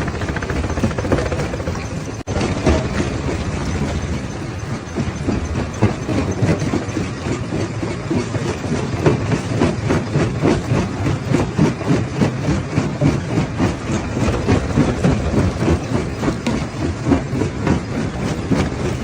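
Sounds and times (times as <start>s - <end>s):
rock crusher rumbling: 0.0s - 19.0s.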